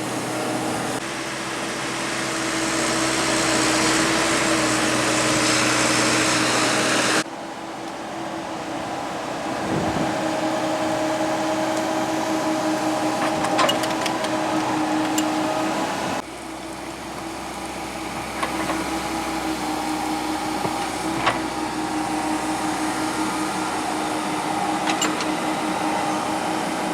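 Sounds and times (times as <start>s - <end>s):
excavator diesel engine running: 0.0s - 26.9s.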